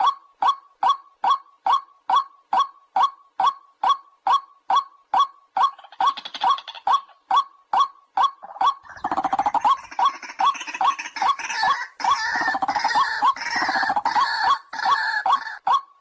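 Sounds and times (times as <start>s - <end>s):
bird croaking calls: 0.0s - 16.0s.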